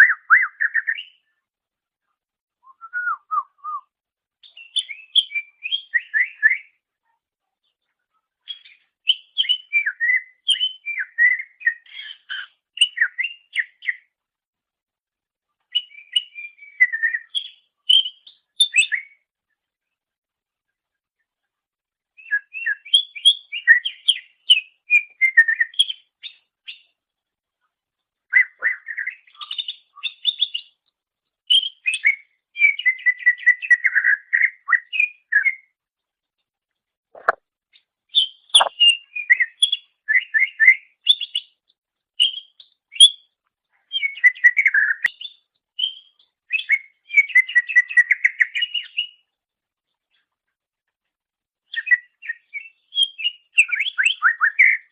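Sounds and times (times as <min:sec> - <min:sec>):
bird singing chirps and whistles: 0:00.0 - 0:01.2, 0:02.6 - 0:06.8, 0:08.5 - 0:14.1, 0:15.7 - 0:19.2, 0:22.2 - 0:26.8, 0:28.3 - 0:30.7, 0:31.5 - 0:35.7, 0:38.1 - 0:41.4, 0:42.2 - 0:43.2, 0:43.9 - 0:49.2, 0:51.7 - 0:54.9.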